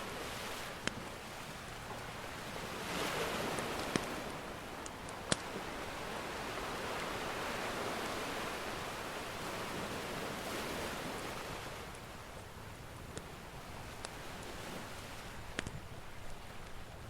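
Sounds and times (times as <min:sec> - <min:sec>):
ocean surf washing in: 0:00.0 - 0:15.8
wood fire pops and crackles: 0:04.8 - 0:05.6, 0:15.5 - 0:16.8.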